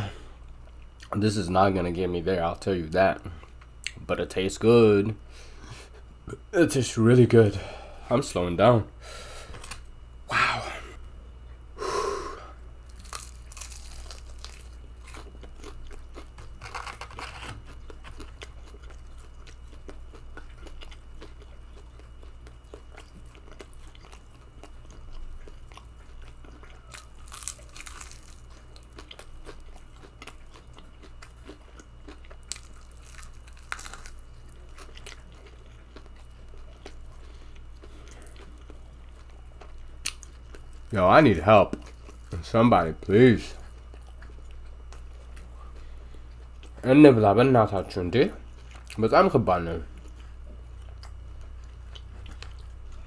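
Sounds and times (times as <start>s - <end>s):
person chewing crunchy food: 11.4s - 46.9s, 48.4s - 49.1s, 49.7s - 53.0s.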